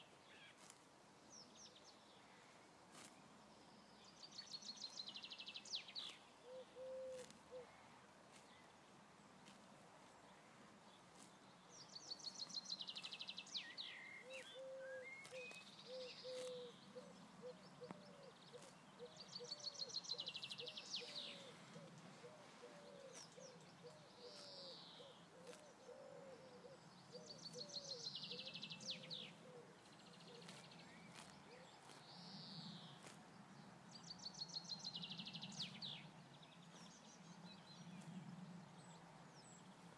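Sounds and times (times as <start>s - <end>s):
faint outdoor background: 0.0s - 39.9s
songbird trilling: 12.0s - 33.2s.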